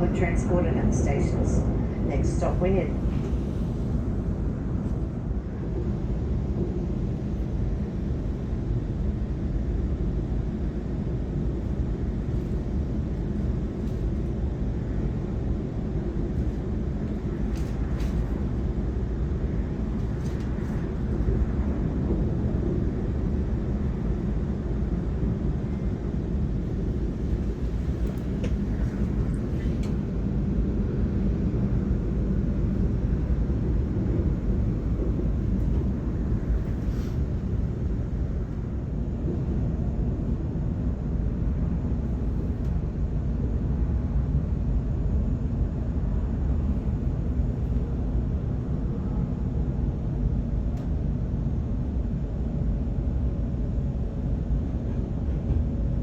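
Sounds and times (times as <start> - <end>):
train wheels rumbling on rails: 11.5 - 30.6, 33.5 - 39.8.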